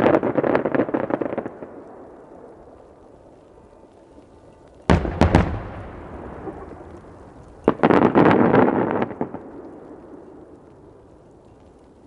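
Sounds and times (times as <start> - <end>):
echoing firework rumble: 0.0 - 12.0
firework shells booming: 4.9 - 9.6.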